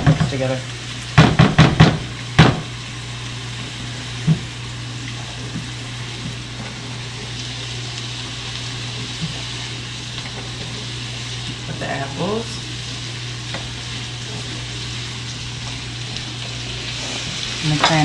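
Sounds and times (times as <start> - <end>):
food frying sizzle: 0.0 - 18.0.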